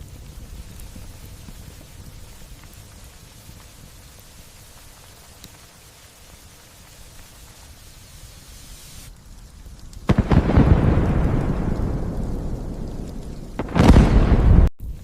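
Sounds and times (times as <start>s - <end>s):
light rain hissing: 0.0s - 15.0s
nearby thunderclap rumbling: 10.1s - 14.7s.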